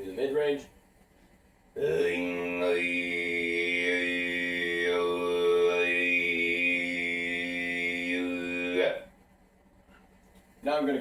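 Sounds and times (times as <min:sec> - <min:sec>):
throat singing drone: 0:01.7 - 0:09.2.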